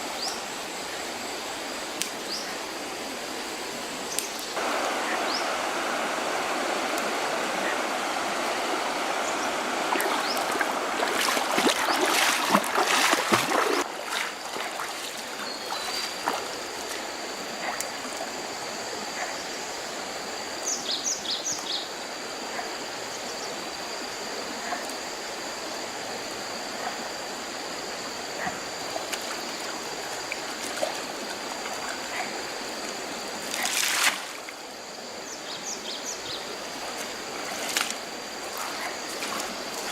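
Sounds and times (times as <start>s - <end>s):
running water splashing: 4.6s - 18.3s, 28.9s - 34.6s, 36.3s - 39.9s.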